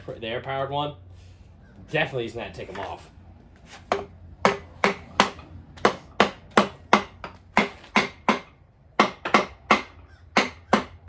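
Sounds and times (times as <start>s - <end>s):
hammer striking engine part: 3.9s - 11.0s.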